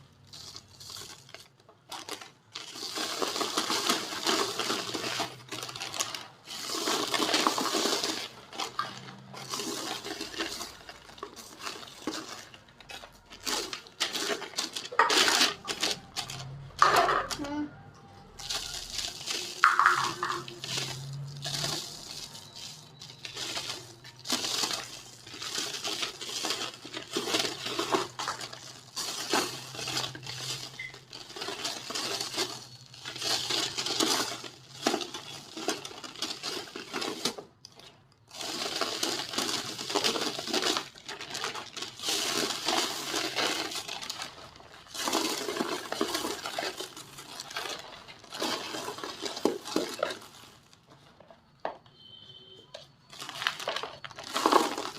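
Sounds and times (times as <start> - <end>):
cement crumbling and crunching: 0.0 - 17.6, 18.2 - 54.9.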